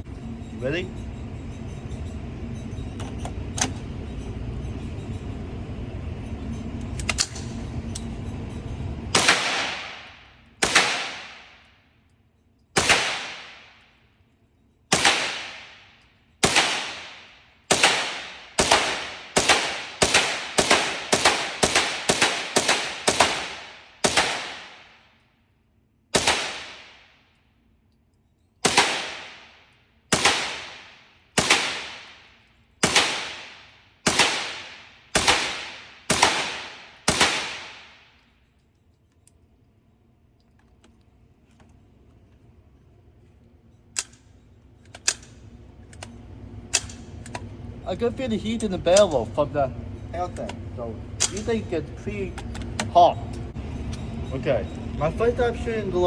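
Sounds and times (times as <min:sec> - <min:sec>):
rifle shots echoing: 0:09.2 - 0:11.6, 0:12.8 - 0:13.8, 0:14.9 - 0:25.0, 0:26.2 - 0:27.2, 0:28.6 - 0:38.1.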